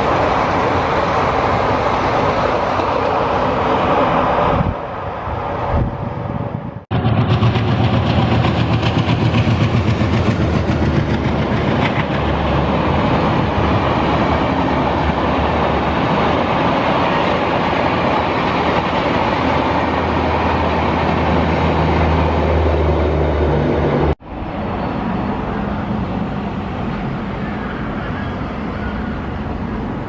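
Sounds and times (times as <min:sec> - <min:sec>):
train rushing rumble: 0:00.0 - 0:30.0
wheels clattering over rail joints: 0:07.0 - 0:21.6.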